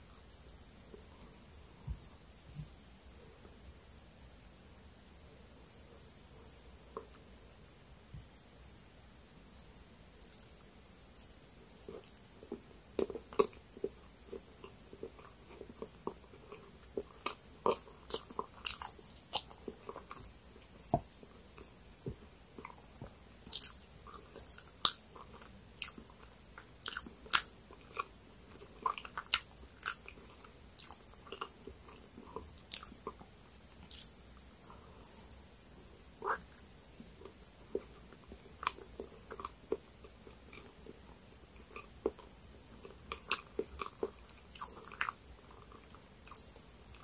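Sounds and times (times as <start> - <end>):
wet chewing mouth clicks: 11.8 - 35.5, 36.1 - 41.0.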